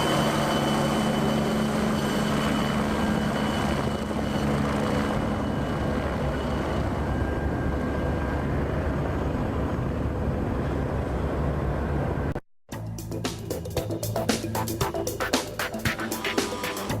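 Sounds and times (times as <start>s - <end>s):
helicopter rotor beat: 0.0s - 17.0s
turbine noise: 10.2s - 17.0s.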